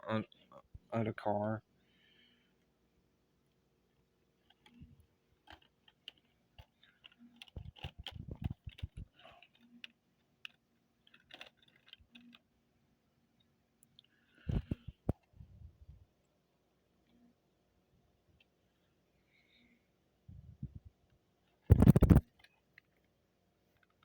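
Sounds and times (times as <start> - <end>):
model railway cars clicking: 11.1 - 12.4.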